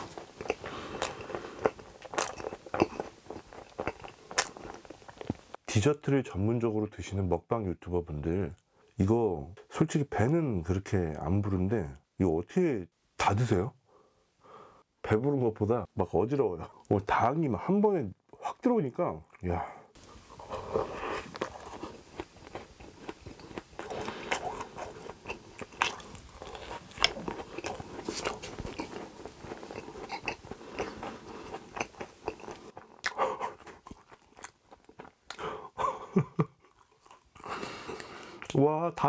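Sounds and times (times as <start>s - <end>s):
crunchy donut chewing: 0.0s - 5.6s, 19.4s - 38.6s.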